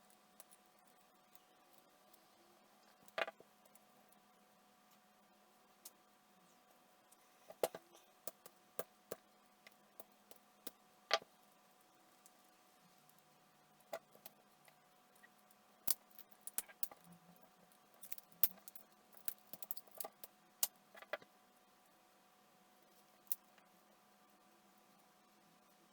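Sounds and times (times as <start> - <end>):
faint steady hum: 0.0 - 25.9
tools clicking and tapping: 18.0 - 21.3.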